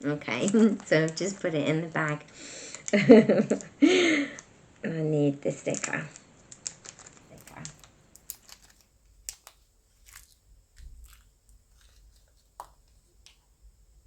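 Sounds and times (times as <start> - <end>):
plastic bag crinkling: 0.0 - 1.7, 5.7 - 13.5.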